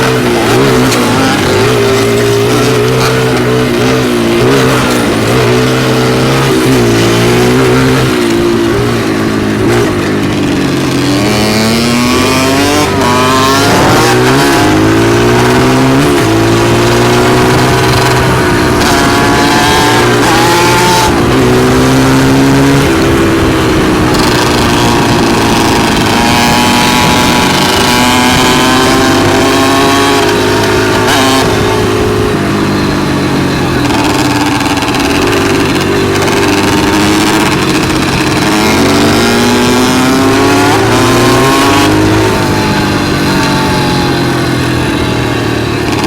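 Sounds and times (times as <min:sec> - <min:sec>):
dirt bike engine revving: 0:00.0 - 0:46.0.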